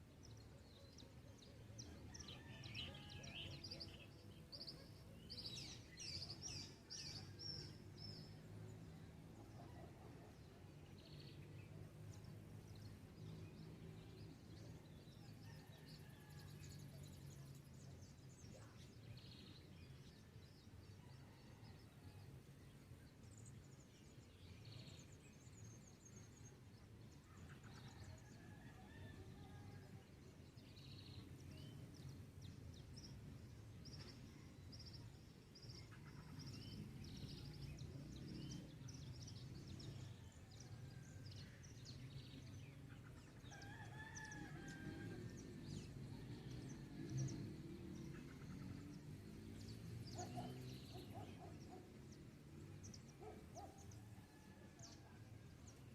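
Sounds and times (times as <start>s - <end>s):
songbirds calling: 41.4s - 55.0s.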